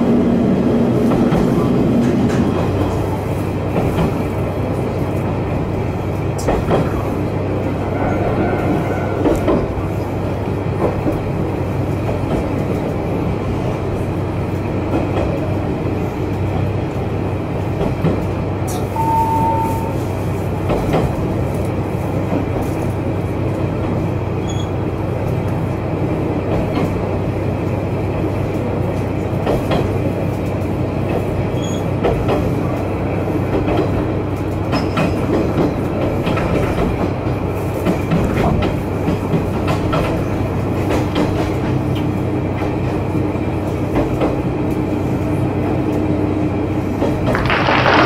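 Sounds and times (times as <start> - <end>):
wheel on rail noise: 0.0 - 48.0
wheels clicking over rail joints: 33.5 - 42.8.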